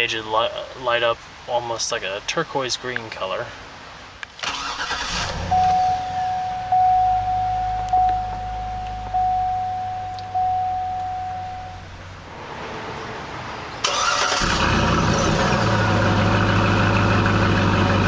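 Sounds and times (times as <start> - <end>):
low hum: 5.2 - 12.4
dashboard warning chime: 5.4 - 12.2.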